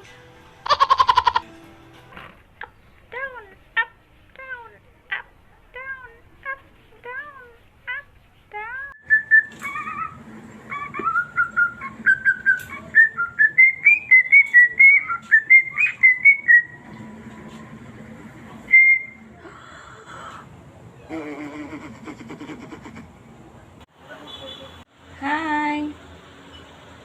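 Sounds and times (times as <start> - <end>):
parrot whistling a tune: 9.0 - 16.8, 18.7 - 19.3.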